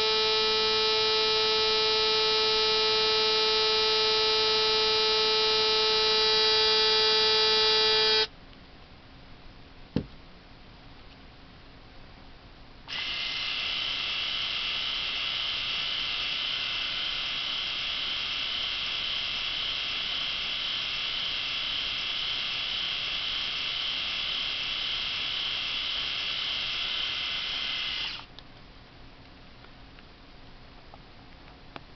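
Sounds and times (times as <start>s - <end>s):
electric shaver motor buzz: 0.0s - 8.3s, 12.9s - 28.3s.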